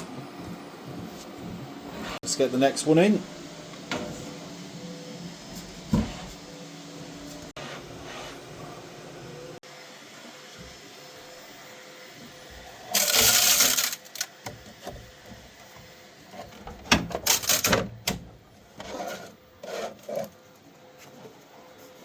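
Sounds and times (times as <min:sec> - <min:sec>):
rubbing or sliding: 0:18.8 - 0:20.3.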